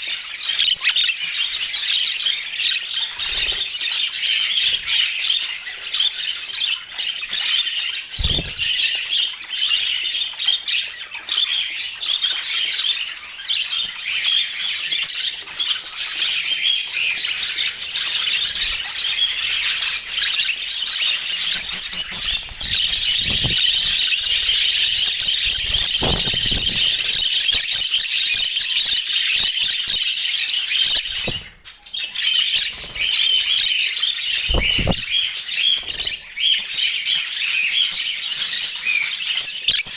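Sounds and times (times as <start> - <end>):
budgerigars chattering and squawking: 0.0 - 39.9
soft thumps: 34.5 - 35.2.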